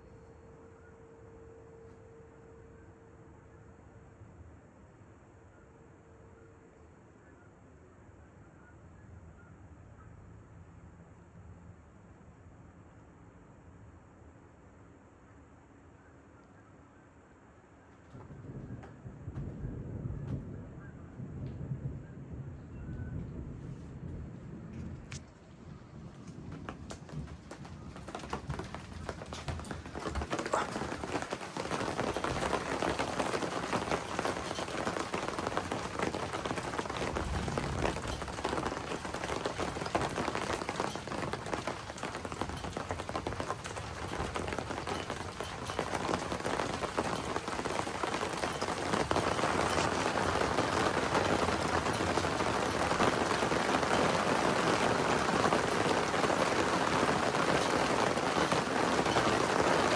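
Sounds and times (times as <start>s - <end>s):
heavy rain pattering: 24.3s - 59.9s.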